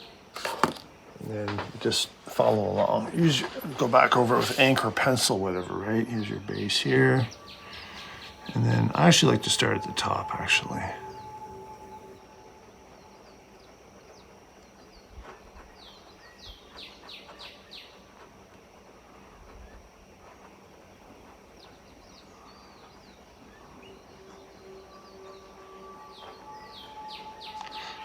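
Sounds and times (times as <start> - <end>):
faint steady hiss: 0.0 - 14.2
birds chirping: 1.2 - 13.0.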